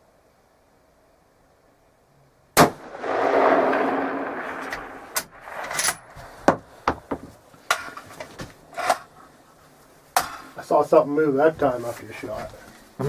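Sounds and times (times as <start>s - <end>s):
rifle shot: 2.6s - 6.6s
rolling rumble: 2.7s - 13.0s.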